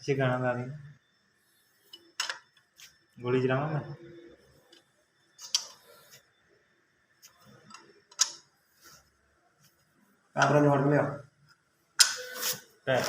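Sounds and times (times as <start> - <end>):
metal tools clicking and tapping: 5.4 - 5.8.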